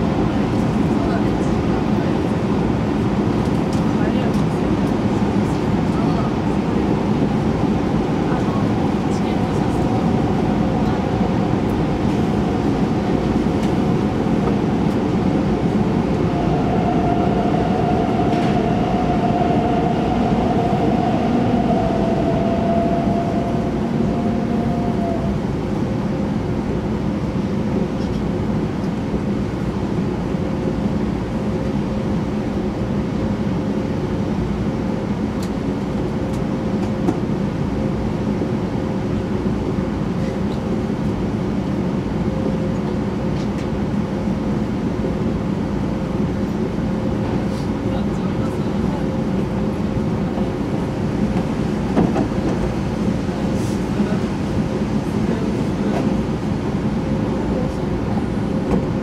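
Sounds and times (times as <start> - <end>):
train wheels rumbling: 0.0 - 26.5
steady train whine: 0.0 - 59.0
higher whine: 8.4 - 26.3.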